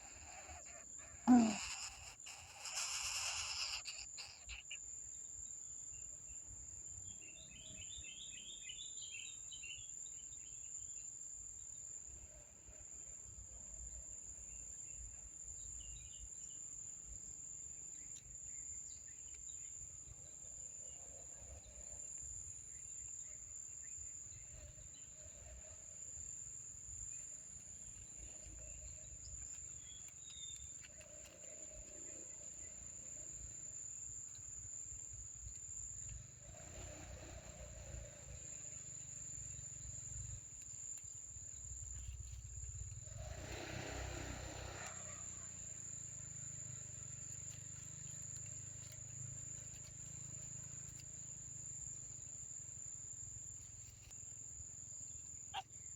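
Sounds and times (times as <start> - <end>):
rapid chirps: 0.0 - 4.8
insect drone: 0.0 - 55.9.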